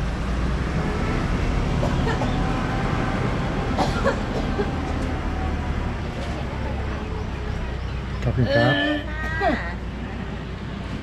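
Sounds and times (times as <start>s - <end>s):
wind and road rumble: 0.0s - 11.0s.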